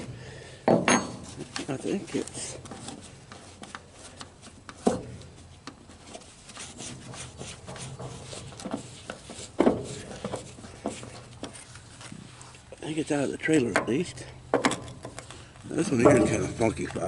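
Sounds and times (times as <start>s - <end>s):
hand tools on metal and wood: 0.6s - 17.0s
sharp knocks: 16.0s - 16.7s.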